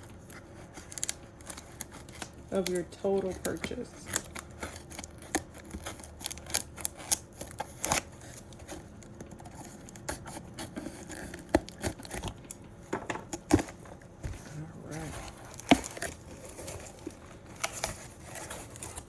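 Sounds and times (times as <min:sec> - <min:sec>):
cardboard box clicks and scrapes: 0:13.4 - 0:19.0.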